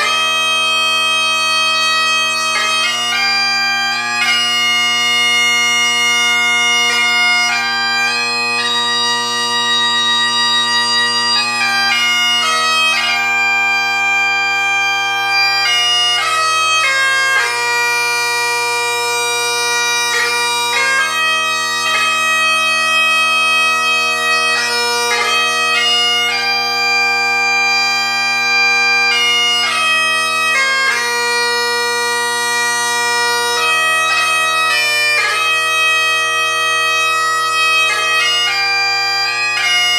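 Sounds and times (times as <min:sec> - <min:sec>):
bagpipe chanter tune: 0:00.0 - 0:39.9
bagpipe drones: 0:00.0 - 0:39.9.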